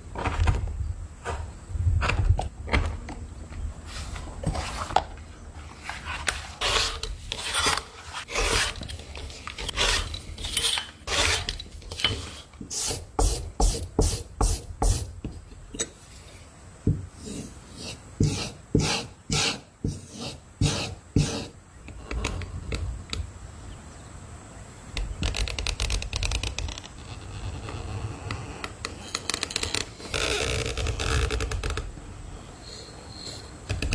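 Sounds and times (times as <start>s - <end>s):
hand tool scraping material: 5.7s - 15.1s, 17.2s - 21.5s.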